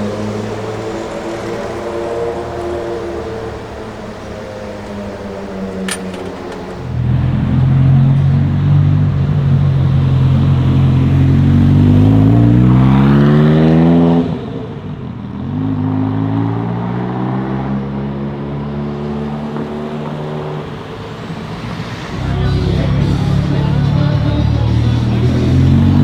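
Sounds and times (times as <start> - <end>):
car engine accelerating hard: 6.7 - 26.0.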